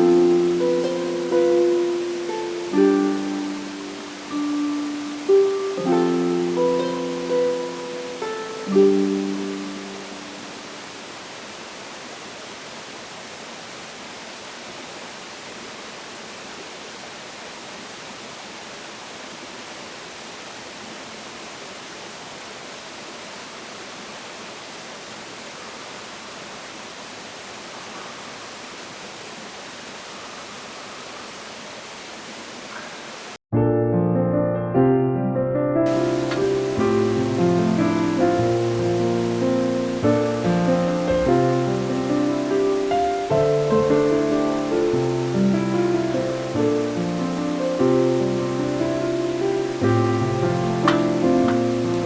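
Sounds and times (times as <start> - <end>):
water rushing: 0.0 - 33.4, 35.9 - 52.0.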